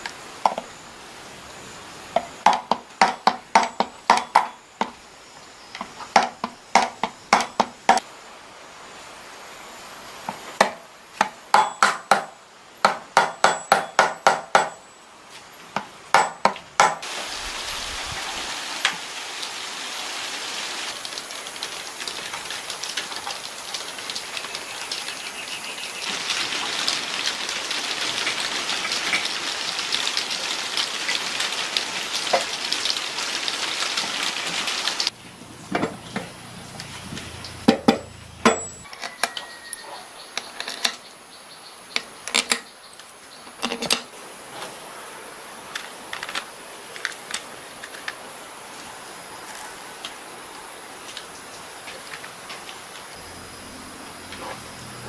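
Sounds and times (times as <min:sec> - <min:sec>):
harsh hiss with crackle: 0:17.0 - 0:35.2, 0:44.2 - 0:55.0.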